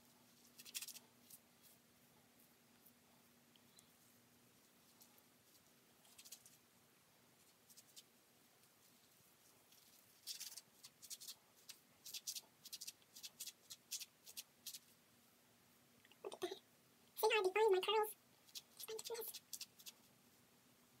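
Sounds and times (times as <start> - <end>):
fingers rustling through wet hair: 18.4 - 20.1.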